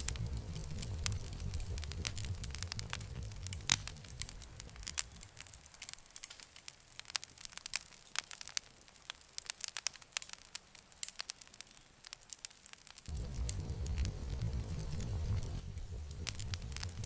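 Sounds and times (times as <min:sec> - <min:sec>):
low rumble: 0:00.0 - 0:05.5, 0:13.1 - 0:17.0
campfire crackling: 0:00.0 - 0:17.0.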